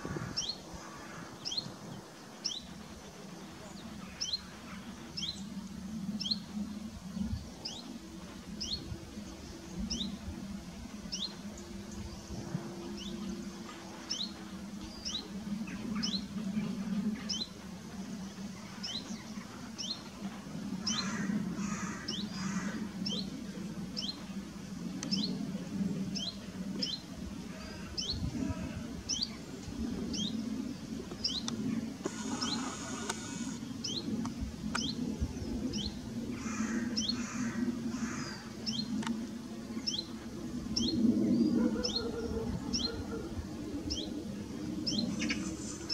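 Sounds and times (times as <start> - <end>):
larger bird harsh calls: 32.1 - 33.6.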